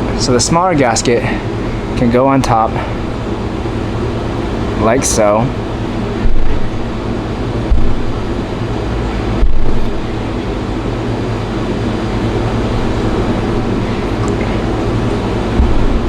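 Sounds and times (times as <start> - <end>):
low mechanical hum: 0.0 - 16.0
dull low thumps: 5.6 - 10.3, 14.7 - 16.0.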